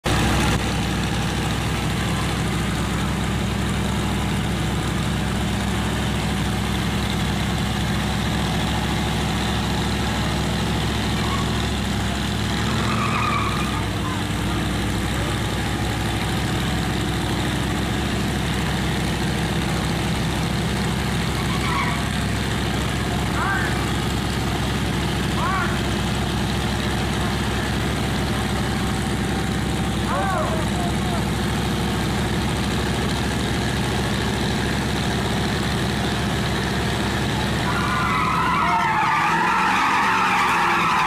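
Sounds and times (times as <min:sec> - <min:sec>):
truck engine idling: 0:00.0 - 0:41.0.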